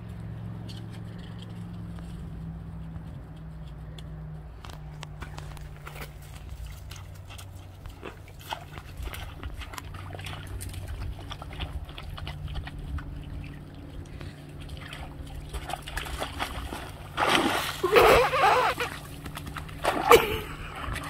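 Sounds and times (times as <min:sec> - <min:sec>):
steady low hum: 0:00.0 - 0:21.0
dog paws crunching on ice: 0:04.6 - 0:11.5.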